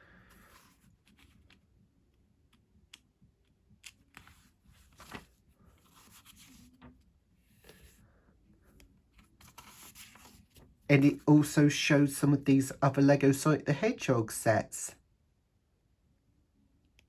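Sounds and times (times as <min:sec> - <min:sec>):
paper rustling: 0:03.8 - 0:08.0, 0:09.1 - 0:11.2.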